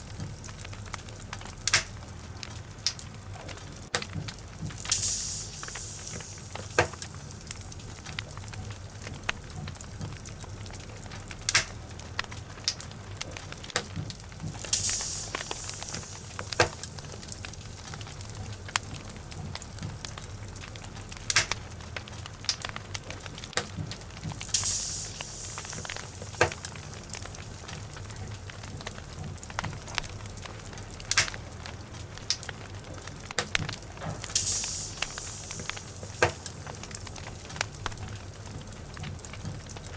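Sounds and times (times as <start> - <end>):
fire hissing: 0.0 - 39.9
log fire crackling and popping: 0.0 - 39.9.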